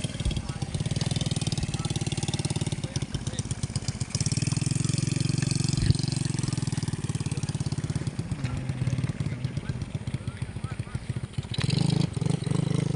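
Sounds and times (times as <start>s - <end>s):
small engine idling: 0.0s - 12.9s.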